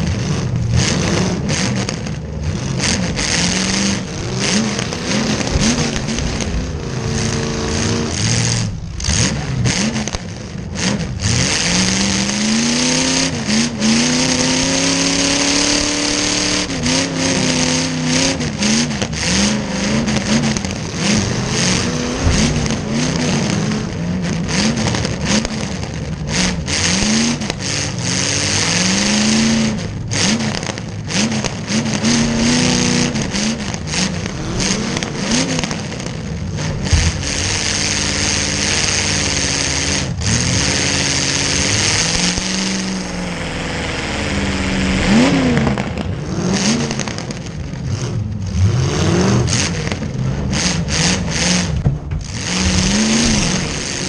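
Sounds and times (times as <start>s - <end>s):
car engine revving: 0.0s - 54.0s
knocks and clatter: 0.7s - 12.2s, 18.6s - 27.8s, 29.9s - 39.3s, 49.5s - 54.0s.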